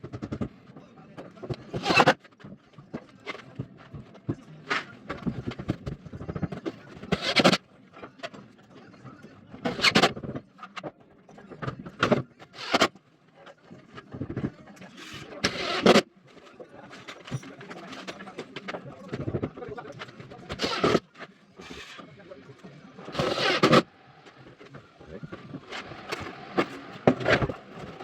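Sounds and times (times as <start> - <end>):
foam board scraping and rubbing: 23.1 - 23.9.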